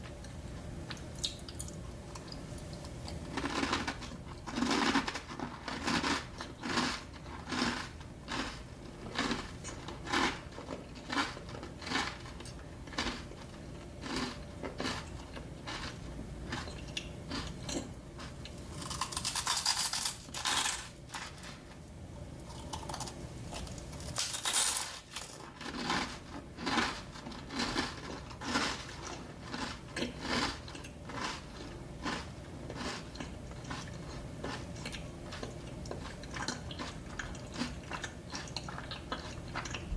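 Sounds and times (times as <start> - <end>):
crunchy bites: 18.7 - 20.9
chewing and mouth clicks: 27.5 - 39.9.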